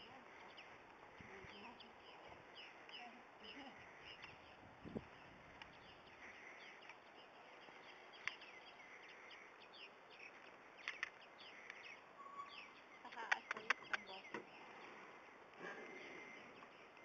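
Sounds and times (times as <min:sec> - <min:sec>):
faint bird chirps: 0:00.0 - 0:17.0
low outdoor hiss: 0:00.0 - 0:17.0
sharp clicks: 0:10.8 - 0:11.8, 0:13.1 - 0:14.4.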